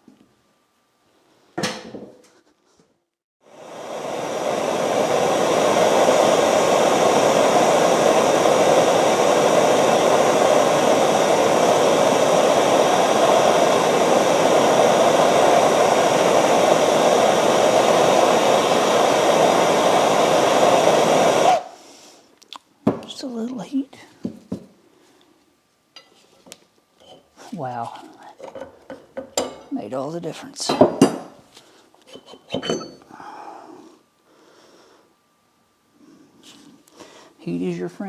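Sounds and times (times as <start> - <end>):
heat gun blowing: 3.4 - 22.3.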